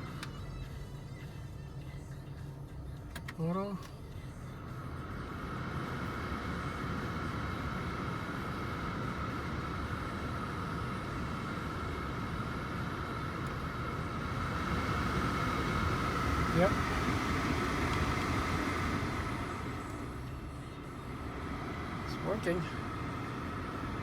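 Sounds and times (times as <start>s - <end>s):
thin motor whine: 3.8s - 24.0s
blower motor rushing air: 5.2s - 24.0s.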